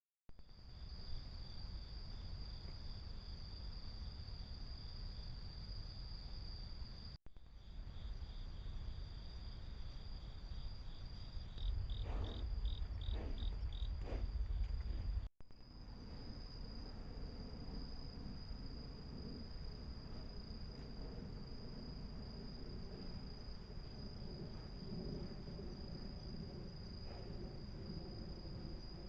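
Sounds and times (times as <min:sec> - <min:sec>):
crickets trilling: 0:00.5 - 0:29.0
low rumble: 0:07.5 - 0:29.0.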